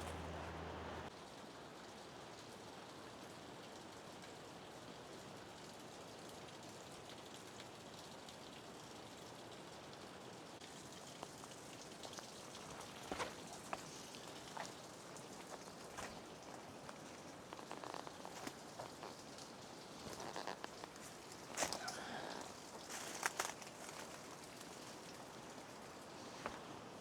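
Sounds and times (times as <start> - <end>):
steady rain-like hiss: 0.0 - 27.0
twigs and dry leaves crackling: 11.9 - 27.0.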